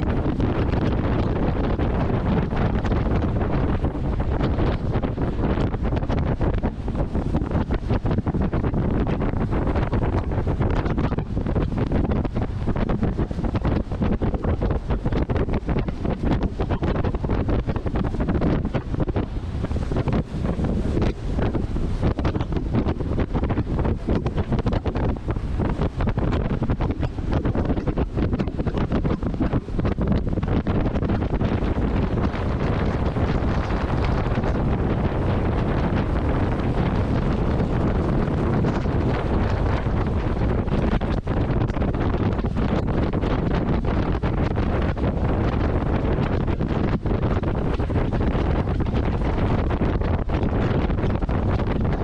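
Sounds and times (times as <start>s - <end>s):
low rumble: 0.0s - 52.0s
wind buffeting microphone: 0.0s - 52.0s.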